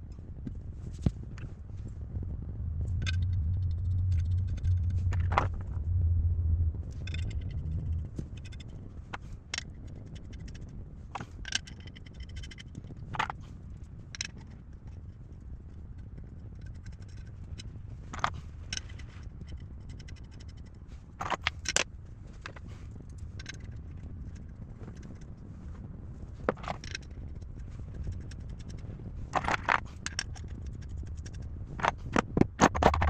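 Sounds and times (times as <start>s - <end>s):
low steady hum: 0.0s - 33.0s
metal tools clicking and clinking: 29.4s - 33.0s.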